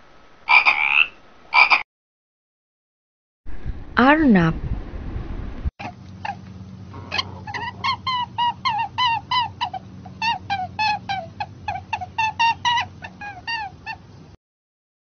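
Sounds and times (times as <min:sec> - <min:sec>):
rabbit squeaking: 0:05.8 - 0:14.2.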